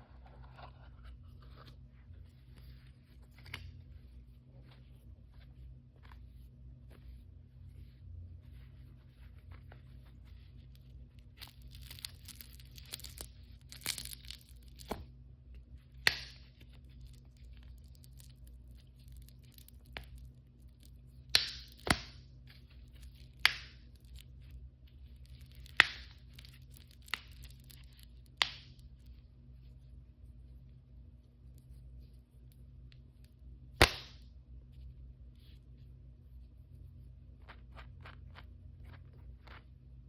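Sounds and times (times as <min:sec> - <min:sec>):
plastic packaging tearing and crinkling: 0:11.2 - 0:15.0.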